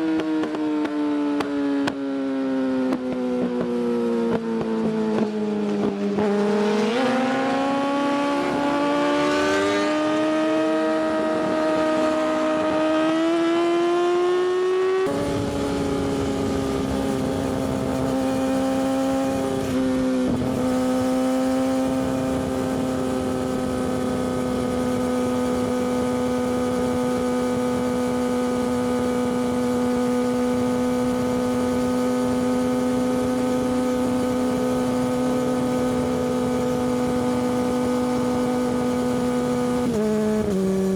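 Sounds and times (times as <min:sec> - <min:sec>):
motorcycle engine revving: 0:02.9 - 0:40.9
wind rushing noise: 0:06.2 - 0:12.9.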